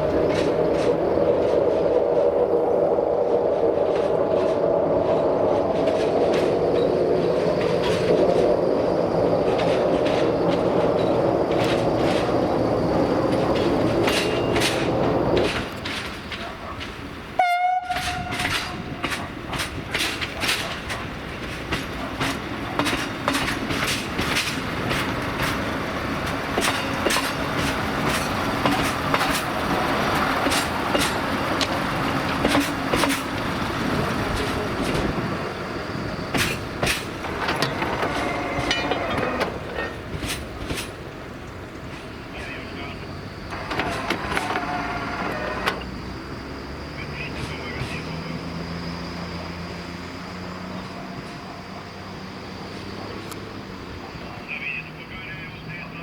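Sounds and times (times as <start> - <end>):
wheels clicking over rail joints: 0.0 - 2.1, 3.5 - 51.8
train horn blast: 17.4 - 18.8.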